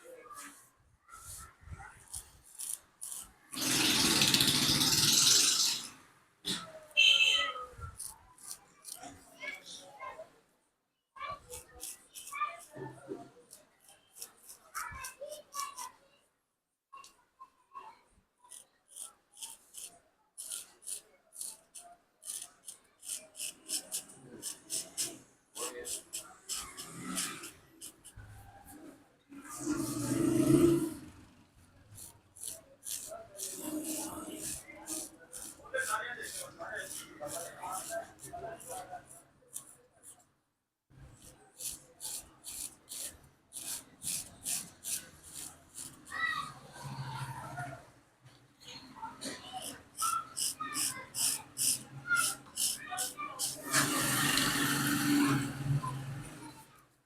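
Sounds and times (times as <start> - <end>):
razor blade scraping scalp: 2.0 - 5.9, 8.0 - 9.2, 11.5 - 12.7, 13.5 - 15.2, 18.5 - 28.4, 31.9 - 40.2, 41.2 - 47.0, 49.6 - 55.4
blade cutting hair rasping: 32.0 - 38.2, 41.6 - 46.0, 49.7 - 55.6.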